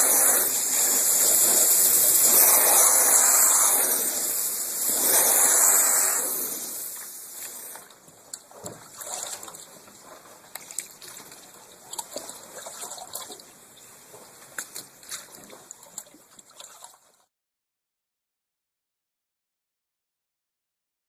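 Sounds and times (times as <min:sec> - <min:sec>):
water trickling and dripping: 0:06.7 - 0:17.3.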